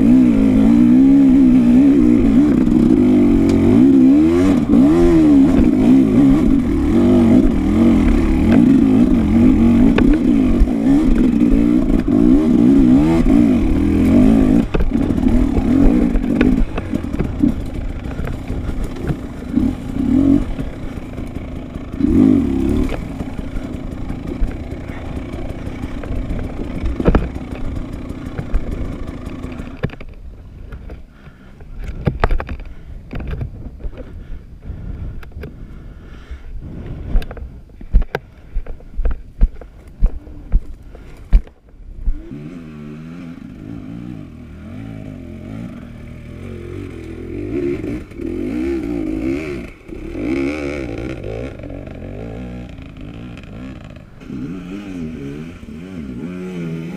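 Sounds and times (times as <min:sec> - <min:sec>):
dirt bike engine revving: 0:00.0 - 0:30.0, 0:41.9 - 0:56.9.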